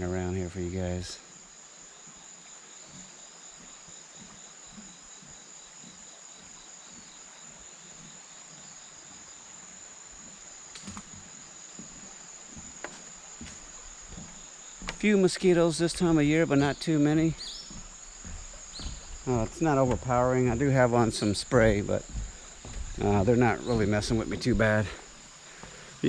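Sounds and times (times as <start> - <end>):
insects chirring: 0.0 - 26.0
distant river rushing: 10.2 - 26.0.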